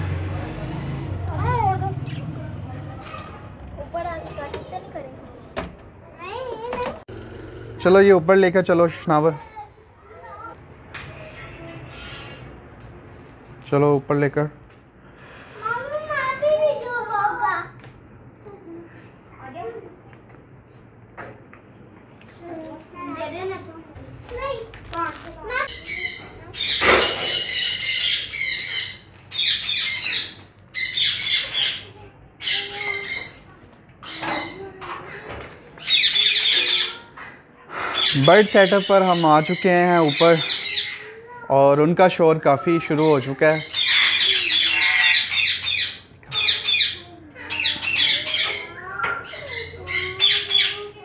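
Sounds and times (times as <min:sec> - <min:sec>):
parrots squawking: 0:11.2 - 0:12.6, 0:25.5 - 0:41.4, 0:42.8 - 0:51.0.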